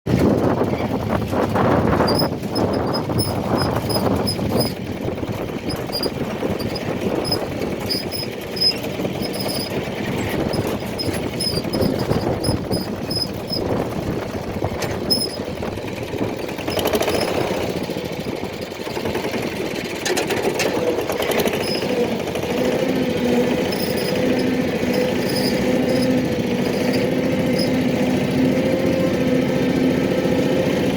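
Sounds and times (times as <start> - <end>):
engine running rough and rattling: 0.1 - 30.9
short high squeaks: 1.9 - 4.8, 5.6 - 13.9, 14.7 - 15.6, 16.7 - 17.5, 21.4 - 22.1, 23.2 - 28.0.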